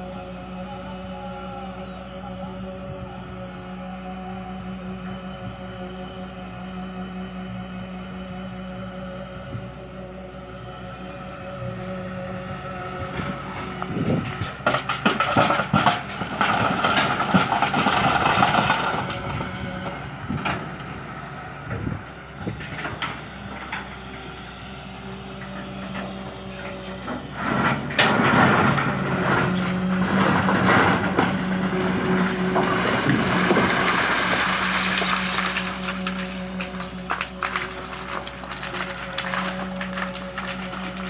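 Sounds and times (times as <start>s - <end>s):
excavator diesel engine running: 0.0s - 41.0s
machine clanks and knocks: 25.6s - 34.0s.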